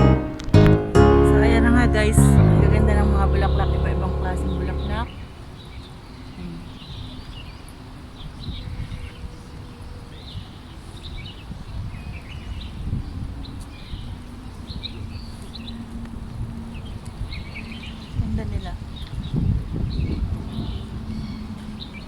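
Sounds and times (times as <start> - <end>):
low background rumble: 0.9 - 5.2.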